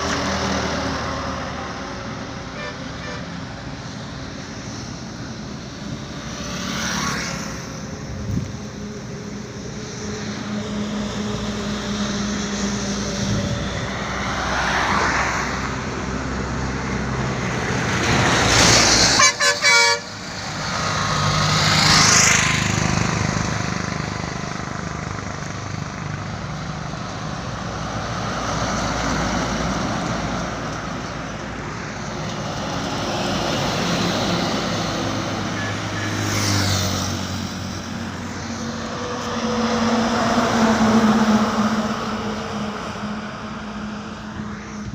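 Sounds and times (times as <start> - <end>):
traffic noise: 0.0 - 44.9
vehicles passing: 0.0 - 44.9
vehicle horn toots: 2.6 - 3.3, 19.2 - 20.1.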